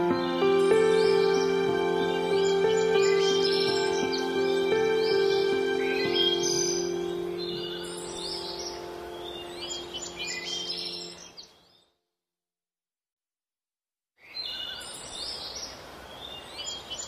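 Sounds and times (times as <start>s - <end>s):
ambient music notes: 0.0s - 11.4s
birds chirping: 0.0s - 11.9s.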